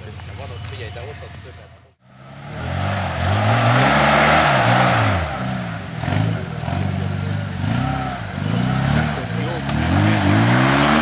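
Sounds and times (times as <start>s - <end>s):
race vehicle engine revving: 2.0s - 11.0s
loud rushing noise: 2.1s - 6.6s.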